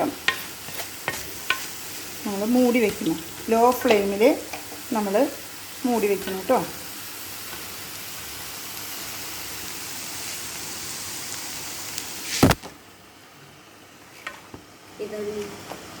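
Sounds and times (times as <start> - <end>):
beetroot sizzling in a pan: 0.0 - 12.9
loud sharp knock: 12.4 - 12.7.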